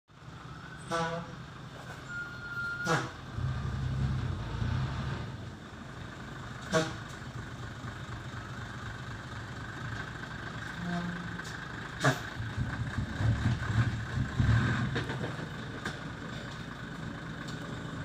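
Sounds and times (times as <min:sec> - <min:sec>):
brief high tone: 0:02.0 - 0:02.9
truck engine running: 0:02.9 - 0:18.0.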